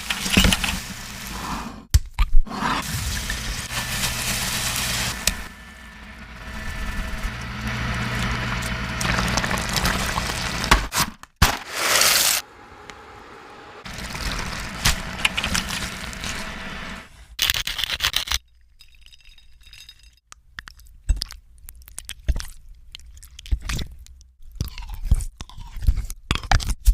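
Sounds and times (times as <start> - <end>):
loud hissing bursts: 2.8 - 5.3.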